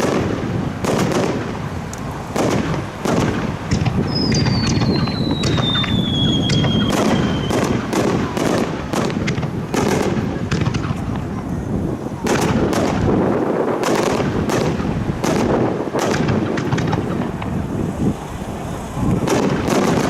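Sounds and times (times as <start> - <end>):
fireworks banging and crackling: 0.0 - 20.0
descending firework whistle: 2.6 - 8.7.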